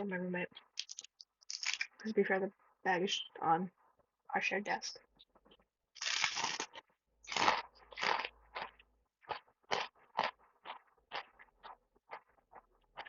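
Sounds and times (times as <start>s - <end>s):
person chewing crunchy food: 0.6s - 2.0s, 6.0s - 13.0s.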